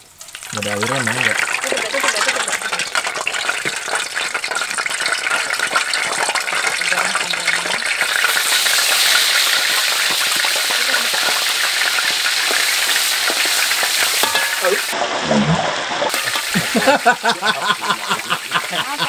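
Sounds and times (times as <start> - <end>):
oil crackling in a wok: 0.0 - 15.2, 16.0 - 18.8
chili paste sizzling: 0.0 - 19.0
metal spatula stirring: 8.3 - 15.0.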